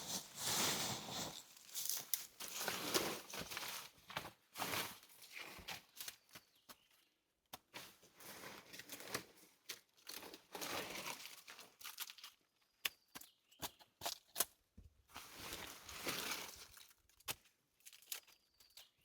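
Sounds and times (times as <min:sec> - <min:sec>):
dry branches rustling and crunching: 0:00.0 - 0:06.1.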